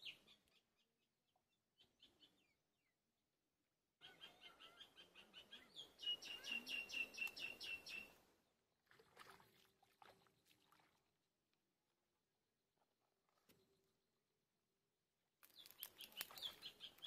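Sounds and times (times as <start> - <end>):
bird calling repeated notes: 4.0 - 8.2.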